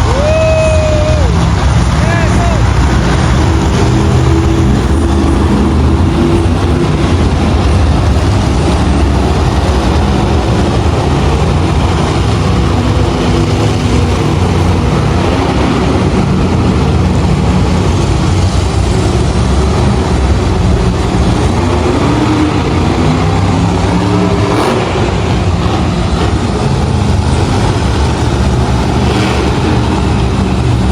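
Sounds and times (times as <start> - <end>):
monster truck engine droning: 0.0 - 30.9.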